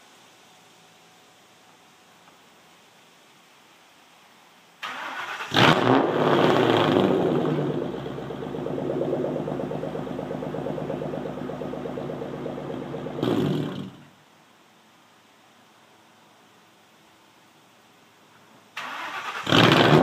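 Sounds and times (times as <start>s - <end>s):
car engine starting and idling: 4.8s - 14.1s, 18.8s - 20.0s.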